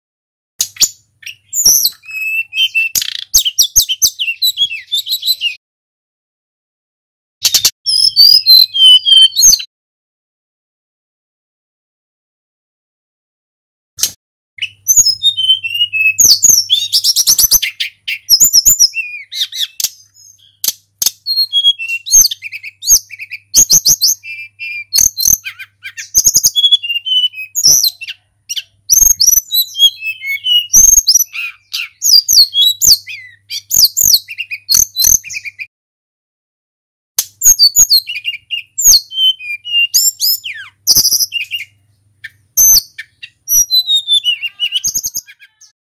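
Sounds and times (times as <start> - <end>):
bird singing whistled phrases: 0.7 - 5.6, 7.4 - 9.7, 14.6 - 35.7, 37.4 - 45.8.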